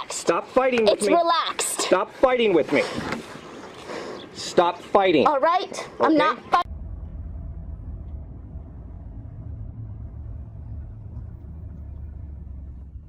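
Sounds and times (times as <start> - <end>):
faint steady hum: 6.6 - 13.0
vehicle engine and road noise: 6.6 - 13.0.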